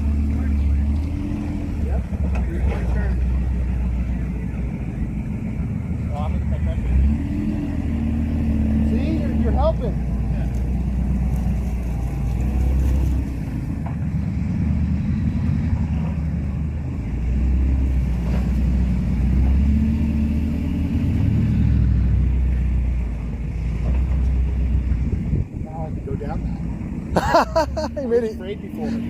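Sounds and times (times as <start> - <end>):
truck engine rumbling: 0.0 - 29.0.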